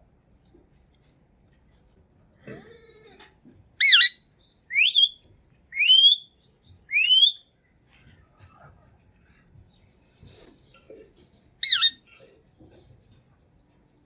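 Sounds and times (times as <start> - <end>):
parakeet squawking: 3.8 - 5.2, 5.8 - 6.2, 6.9 - 7.4, 11.6 - 12.0.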